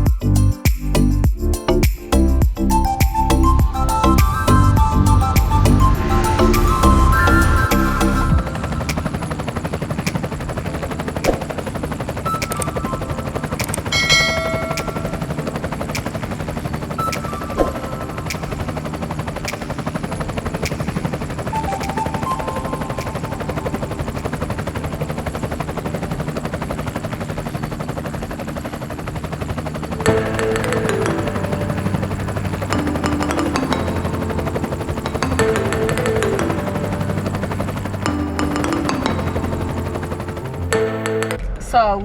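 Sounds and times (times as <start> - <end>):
helicopter rotor chop: 2.1 - 42.0.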